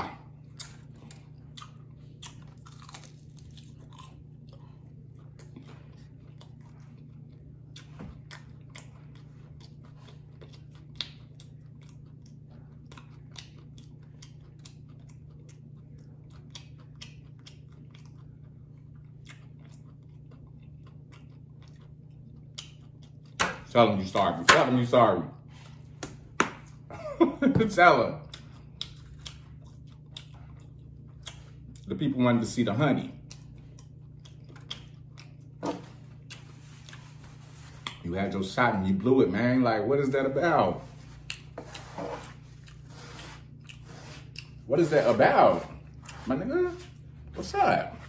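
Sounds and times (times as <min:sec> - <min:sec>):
crunchy chewing and biting: 0:00.0 - 0:23.7, 0:33.1 - 0:38.1.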